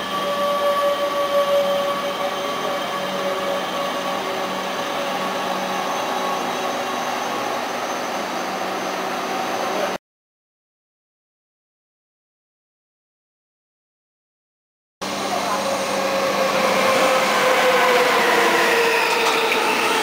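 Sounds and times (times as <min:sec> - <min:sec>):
electric train tonal hum: 0:00.0 - 0:10.0, 0:15.0 - 0:20.0
train rolling on rails: 0:00.0 - 0:10.0, 0:15.0 - 0:20.0.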